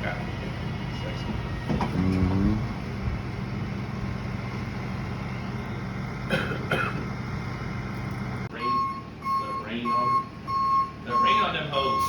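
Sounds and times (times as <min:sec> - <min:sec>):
vehicle engine idling: 0:00.1 - 0:12.0
engine coughing: 0:06.2 - 0:07.3.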